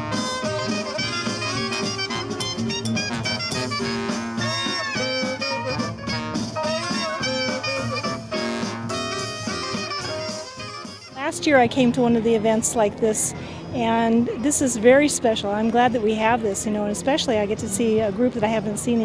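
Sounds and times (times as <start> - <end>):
swing jazz with brass and saxophone: 0.0 - 12.4.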